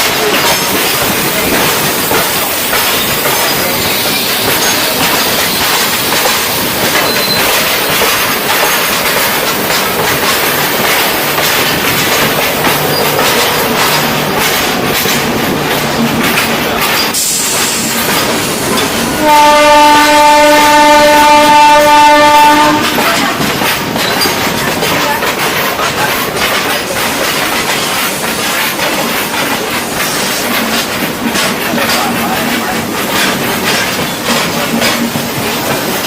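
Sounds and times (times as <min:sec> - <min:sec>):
train wheels clattering on rails: 0:00.0 - 0:36.0
train horn blast: 0:19.0 - 0:23.4.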